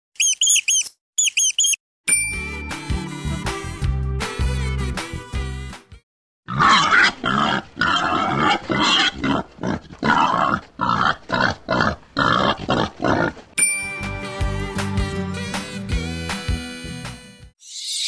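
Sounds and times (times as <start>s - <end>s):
bright bell ding: 2.1s - 2.9s, 13.6s - 14.3s
wild boar grunting: 6.5s - 13.5s.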